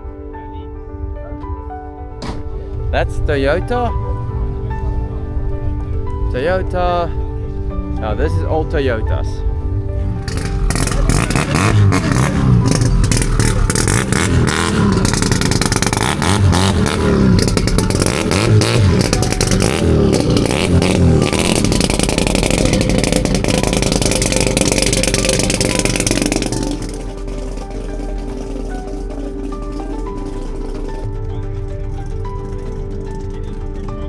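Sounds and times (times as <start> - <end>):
vehicle engine revving: 2.2 - 34.0.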